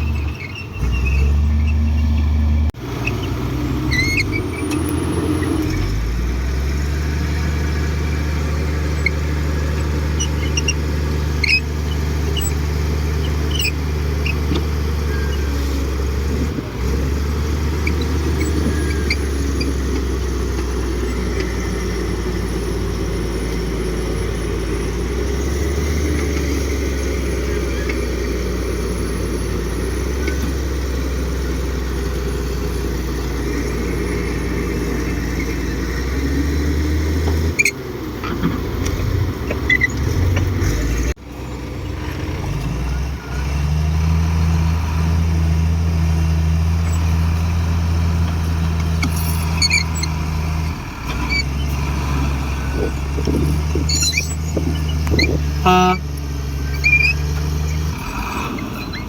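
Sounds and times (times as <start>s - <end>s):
bulldozer diesel engine droning: 0.0s - 59.0s
knocks and rattles: 52.7s - 55.6s.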